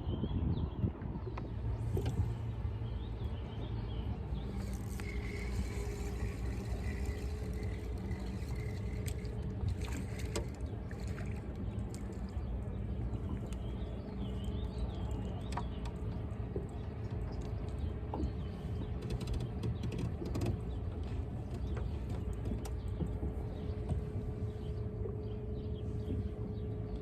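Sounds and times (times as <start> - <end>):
boat engine rumble: 0.0 - 27.0
faint hum: 0.0 - 27.0
light clicks and knocks: 15.1 - 24.4.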